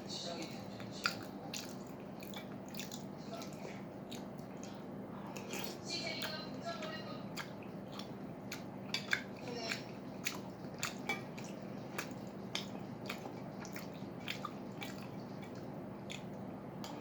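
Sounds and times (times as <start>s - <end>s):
person chewing wetly: 0.3s - 17.0s.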